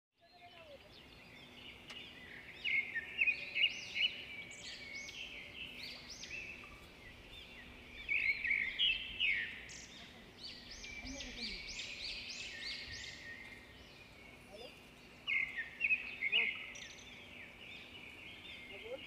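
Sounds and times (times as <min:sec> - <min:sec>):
birds chirping and calling: 0:00.2 - 0:19.0.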